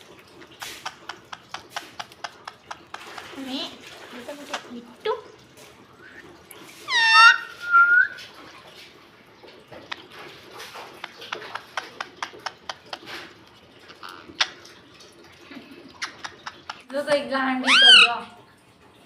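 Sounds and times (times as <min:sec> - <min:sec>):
parrot call: 0:06.9 - 0:08.2, 0:17.6 - 0:18.2
parrot whistle: 0:06.9 - 0:08.2, 0:17.6 - 0:18.2.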